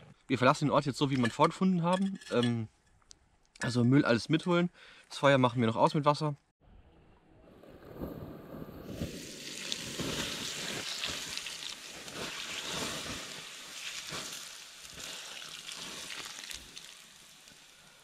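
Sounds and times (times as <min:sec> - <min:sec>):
embers hissing and sizzling: 0:08.9 - 0:18.0.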